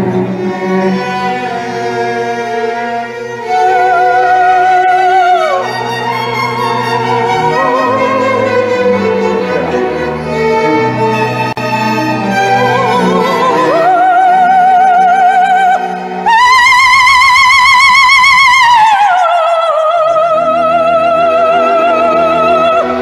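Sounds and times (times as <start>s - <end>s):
string orchestra: 0.0s - 23.0s
woman singing with vibrato: 3.4s - 9.9s, 12.3s - 23.0s.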